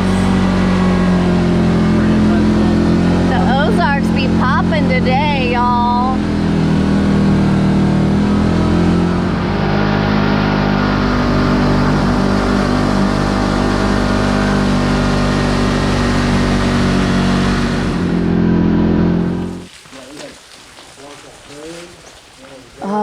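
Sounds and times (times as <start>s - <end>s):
vehicle engine running: 0.0s - 20.1s.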